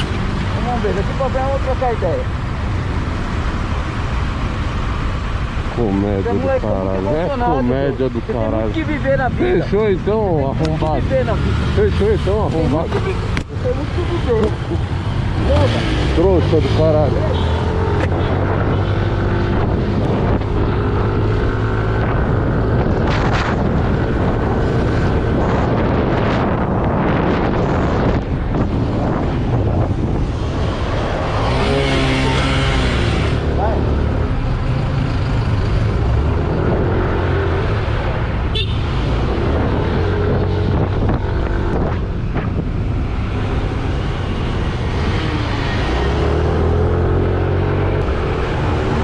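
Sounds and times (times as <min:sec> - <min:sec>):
wind rushing over microphone: 0:05.6 - 0:49.0.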